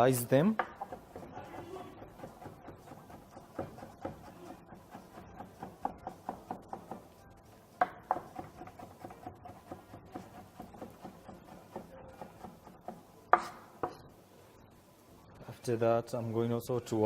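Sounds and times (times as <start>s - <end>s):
knife tapping on chopping board: 2.0s - 7.0s, 7.8s - 14.0s.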